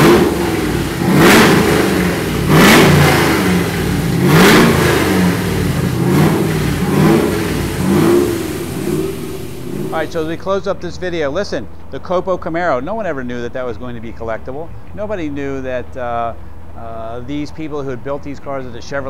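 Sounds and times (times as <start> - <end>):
car engine revving: 0.0 - 10.5.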